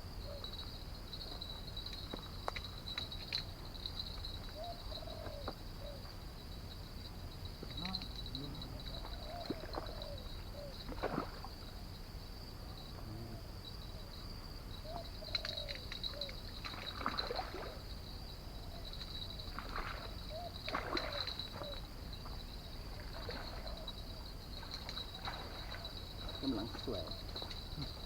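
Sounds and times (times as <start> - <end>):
water sloshing and splashing: 10.8 - 11.6, 16.6 - 17.8, 19.5 - 21.6, 22.9 - 23.8, 24.5 - 28.0.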